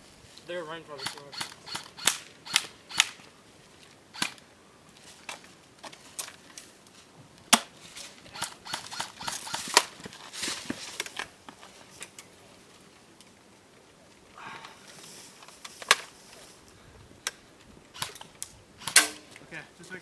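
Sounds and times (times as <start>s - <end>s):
airsoft gun shots popping: 18.8s - 19.3s.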